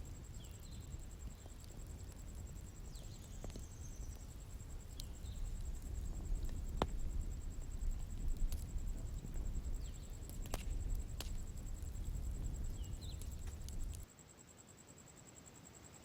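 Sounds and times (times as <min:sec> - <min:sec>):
bonfire crackling and popping: 0:00.0 - 0:14.1
crickets trilling: 0:00.0 - 0:16.0.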